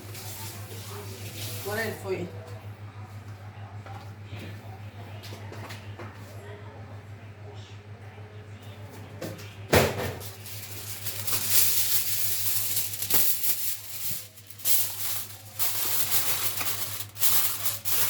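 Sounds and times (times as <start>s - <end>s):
sharp crack of foil: 9.9s - 18.0s
aluminium foil crinkling: 10.2s - 18.0s.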